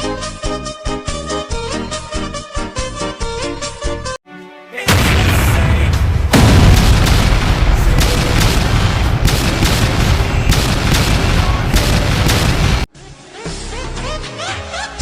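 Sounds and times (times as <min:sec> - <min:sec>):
battle booms: 0:04.9 - 0:12.9
deep rumble: 0:04.9 - 0:12.9
rapid gunfire cracks: 0:04.9 - 0:12.9.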